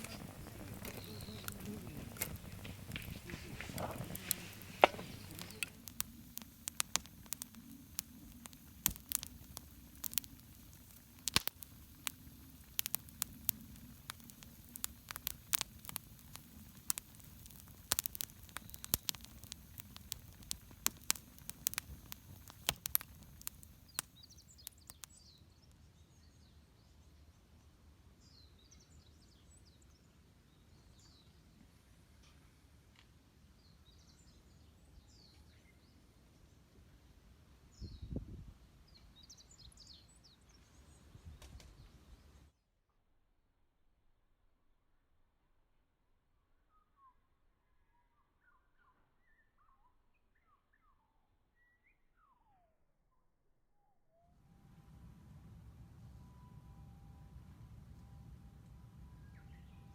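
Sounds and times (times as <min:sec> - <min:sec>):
wood fire crackling: 0:00.0 - 0:25.2
faint bird chirps: 0:00.0 - 0:25.5, 0:46.6 - 0:54.3, 0:59.0 - 0:59.9.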